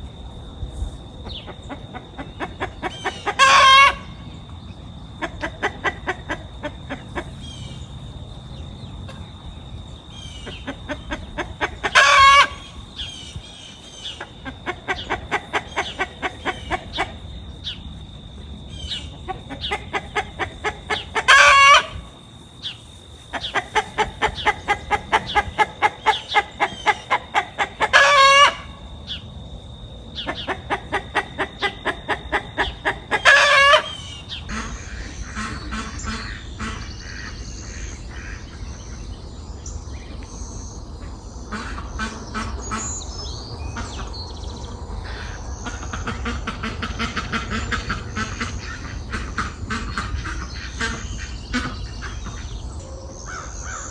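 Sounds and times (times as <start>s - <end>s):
chicken cackling: 1.2s - 4.2s, 5.2s - 7.8s, 10.3s - 17.4s, 18.7s - 28.8s, 30.2s - 38.6s
small birds chirping: 5.9s - 28.4s.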